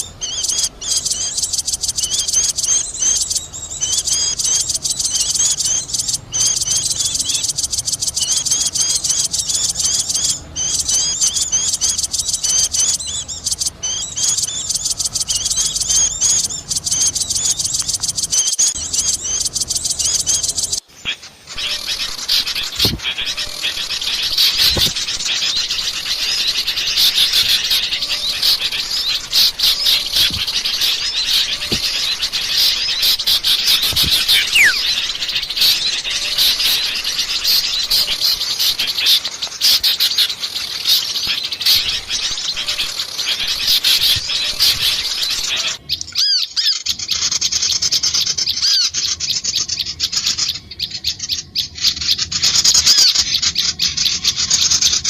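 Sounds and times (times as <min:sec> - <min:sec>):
songbirds chirping and twittering: 0:00.0 - 0:55.0
background hiss: 0:19.4 - 0:45.8.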